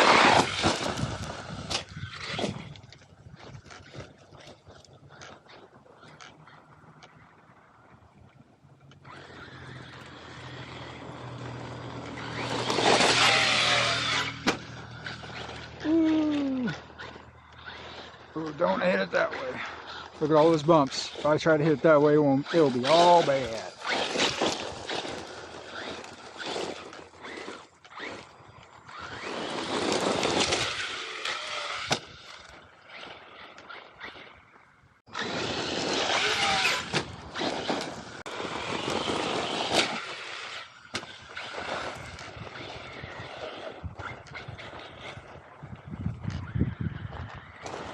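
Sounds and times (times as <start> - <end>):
rc truck motor whine: 0.0 - 3.7, 8.7 - 47.9.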